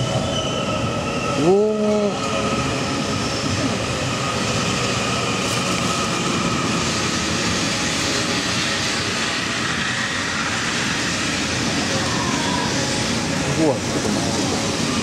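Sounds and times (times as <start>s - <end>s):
train wheels rolling on rails: 0.0s - 15.0s.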